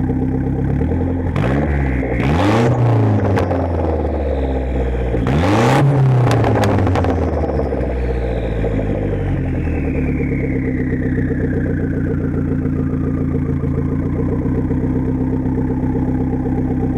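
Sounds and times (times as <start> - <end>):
car engine idling: 0.0 - 16.9
high whine falling in pitch: 1.4 - 16.9.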